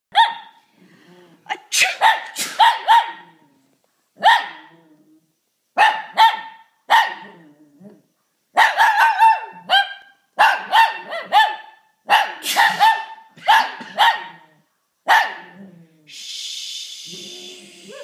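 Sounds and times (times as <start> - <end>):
small dog barking high-pitched: 0.1 - 0.6, 1.6 - 3.4, 4.2 - 4.7, 5.8 - 7.4, 8.5 - 15.6.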